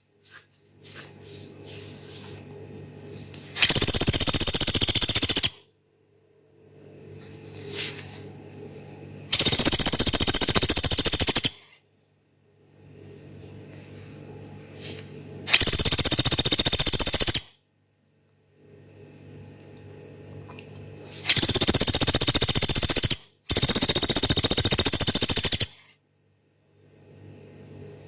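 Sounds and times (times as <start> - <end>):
woodpecker harsh rapid trills: 3.6 - 5.6, 9.3 - 11.8, 15.5 - 17.5, 21.3 - 25.8.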